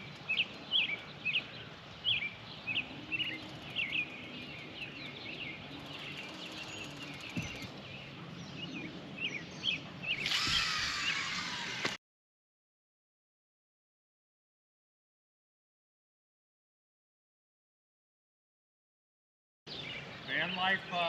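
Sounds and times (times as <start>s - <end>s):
bird chirping: 0.0s - 11.9s, 19.7s - 20.9s
faint outdoor background noise: 0.0s - 12.0s, 19.7s - 21.0s.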